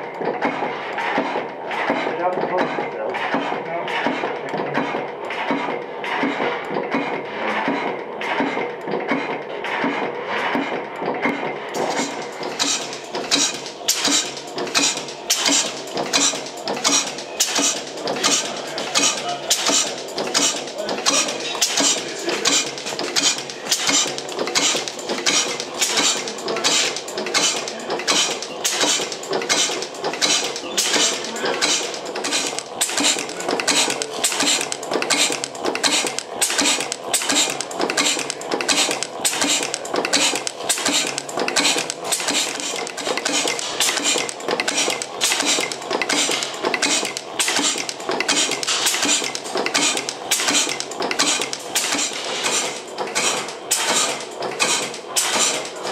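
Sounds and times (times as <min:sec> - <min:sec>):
gas engine running with metallic clatter: 0:00.0 - 0:55.9.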